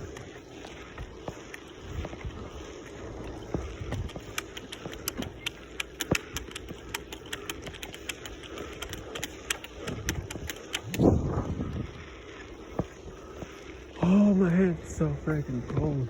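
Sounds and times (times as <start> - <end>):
wind rumble on microphone: 0.0 - 7.0, 7.7 - 16.0
sharp clicks and rattles: 0.0 - 11.4.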